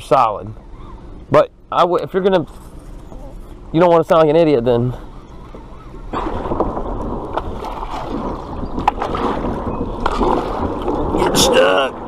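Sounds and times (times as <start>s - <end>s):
water rushing against boat hull: 5.4s - 12.0s.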